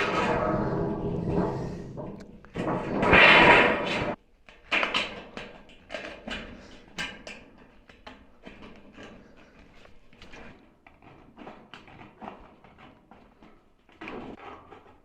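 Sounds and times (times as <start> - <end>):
loud scraping rush: 0.0 - 4.2.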